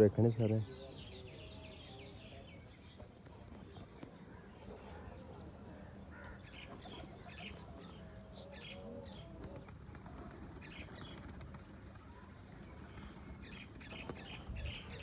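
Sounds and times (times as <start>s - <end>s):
pigeons cooing: 6.2s - 11.5s.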